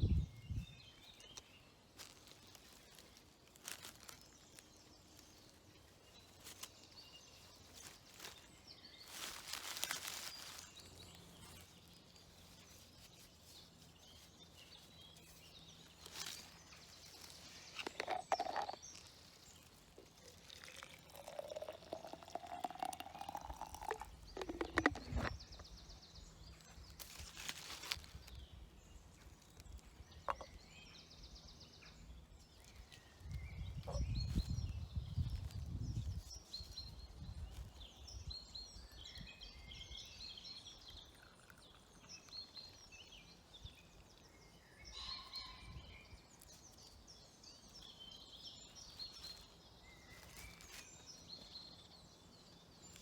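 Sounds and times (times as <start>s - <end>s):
tea things rustling and knocking: 17.2s - 25.8s, 30.2s - 30.6s
water pouring into a cup: 17.9s - 18.8s, 20.1s - 25.3s, 41.1s - 42.0s.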